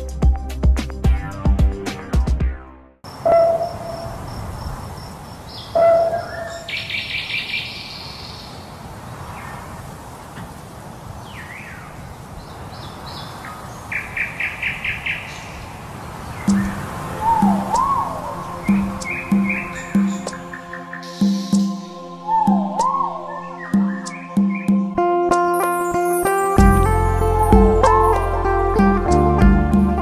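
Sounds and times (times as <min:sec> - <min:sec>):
bird trill: 0:03.1 - 0:08.5, 0:16.4 - 0:24.9, 0:25.5 - 0:28.4
birds calling and singing: 0:03.1 - 0:09.7, 0:11.2 - 0:28.3.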